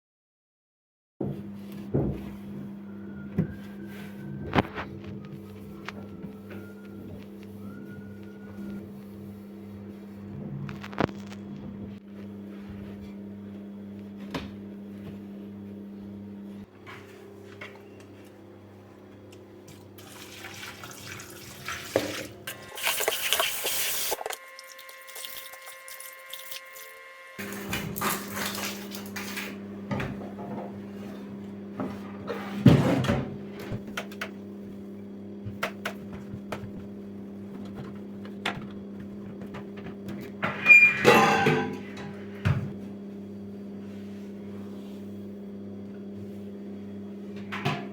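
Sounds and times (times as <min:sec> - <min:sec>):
dishes and cupboards clattering: 0:40.6 - 0:42.7.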